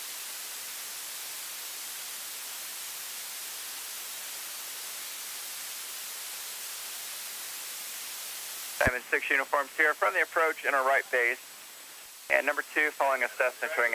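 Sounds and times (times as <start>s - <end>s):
radio static hiss: 0.0s - 13.9s.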